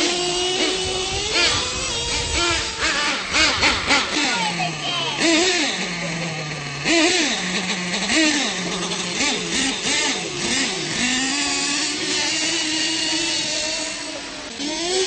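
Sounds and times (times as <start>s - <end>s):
toy truck engines revving: 0.0s - 15.0s.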